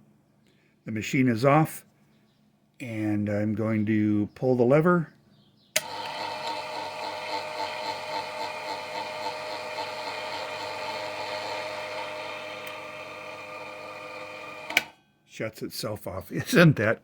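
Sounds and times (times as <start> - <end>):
small electric motor humming: 5.8 - 14.9.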